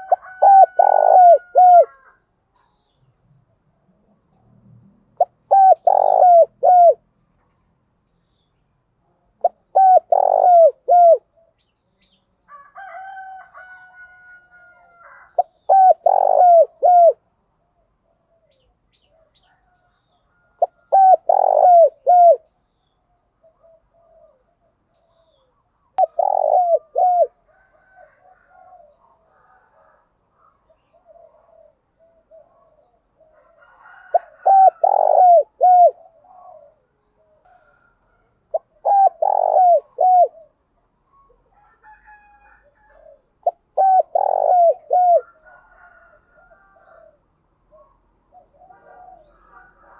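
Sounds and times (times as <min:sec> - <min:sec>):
dove cooing: 0:00.0 - 0:02.2, 0:05.2 - 0:07.1, 0:09.4 - 0:11.6, 0:14.7 - 0:17.3, 0:18.0 - 0:22.5, 0:23.2 - 0:42.0, 0:42.6 - 0:49.9
faint bird calls: 0:05.2 - 0:07.6, 0:09.4 - 0:11.8, 0:15.0 - 0:29.6, 0:30.4 - 0:41.7, 0:42.8 - 0:49.9.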